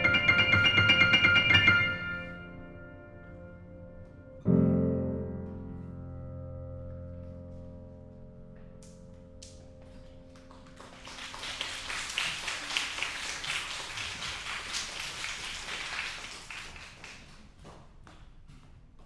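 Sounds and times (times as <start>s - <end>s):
piano chord ringing: 0.0s - 8.8s
audience applauding: 10.4s - 17.8s.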